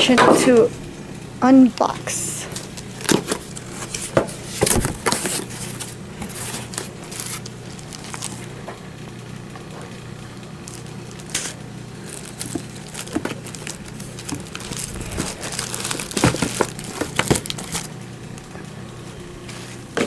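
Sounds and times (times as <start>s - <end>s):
packaging rustling and crinkling: 2.5s - 8.7s, 9.8s - 18.4s.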